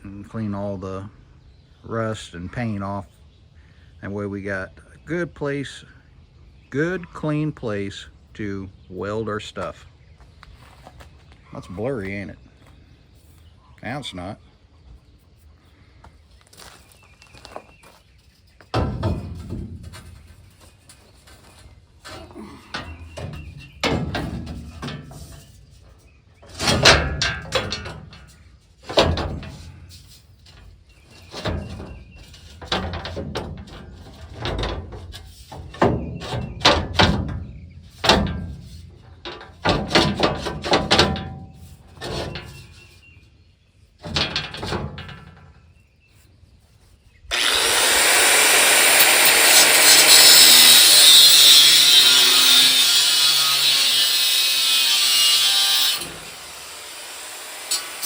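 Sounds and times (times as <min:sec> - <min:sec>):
metal clanks and knocks: 0:18.6 - 0:42.9, 0:44.0 - 0:45.7
angle grinder grinding steel: 0:47.3 - 0:58.0.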